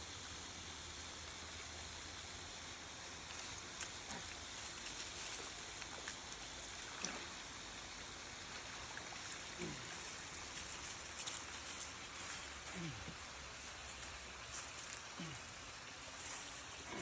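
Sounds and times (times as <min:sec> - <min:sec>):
outdoor hiss: 0:00.0 - 0:17.0
faint ticks: 0:03.0 - 0:07.2, 0:08.9 - 0:15.6.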